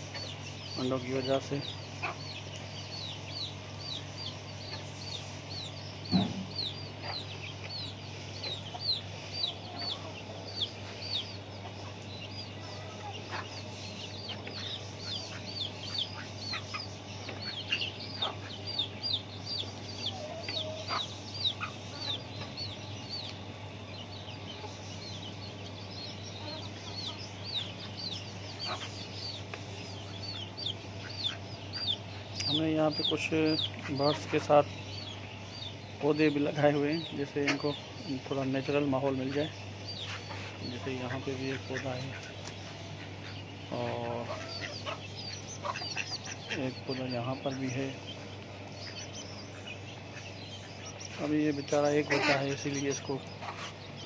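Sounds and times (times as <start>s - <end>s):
chickens clucking: 0.0s - 54.0s
chicks peeping: 0.0s - 54.0s
low hum: 0.0s - 54.0s
thump: 6.1s - 6.4s.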